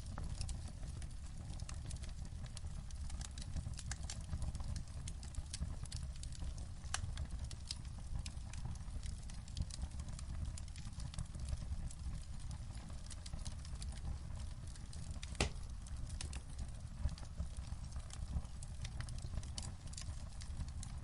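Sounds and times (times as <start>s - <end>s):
wood fire crackling: 0.0s - 21.0s
loud fire pop: 15.3s - 15.7s.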